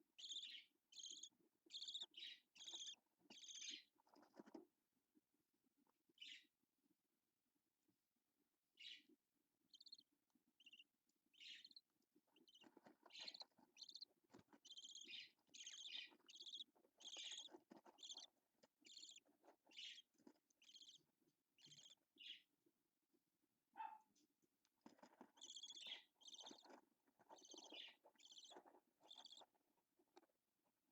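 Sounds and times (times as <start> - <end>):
budgerigar chirping: 0.2 - 4.2, 9.7 - 21.0, 21.6 - 22.4, 25.3 - 29.6.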